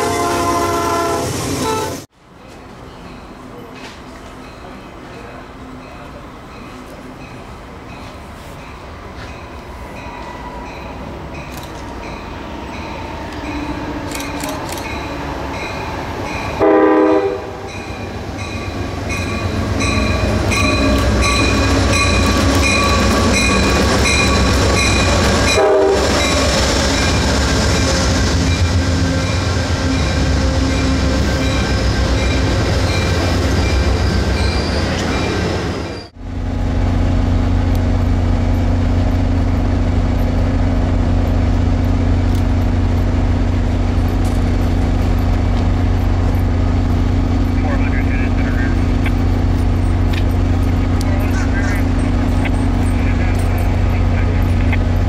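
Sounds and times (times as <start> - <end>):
train horn blast: 0.0 - 2.1, 16.6 - 17.8, 24.4 - 26.4
train rumble: 0.0 - 55.0.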